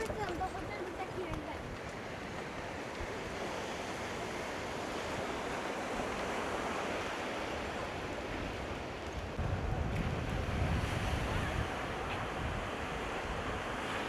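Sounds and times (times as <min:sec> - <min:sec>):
wind buffeting microphone: 0:00.0 - 0:02.1, 0:08.4 - 0:14.0
ocean surf washing on beach: 0:00.0 - 0:14.0.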